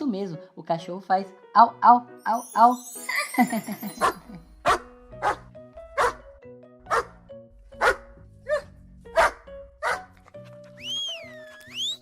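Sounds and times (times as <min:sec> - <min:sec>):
light background music: 0:00.0 - 0:12.0
dog barking: 0:04.0 - 0:06.2, 0:06.9 - 0:07.2, 0:07.8 - 0:10.1.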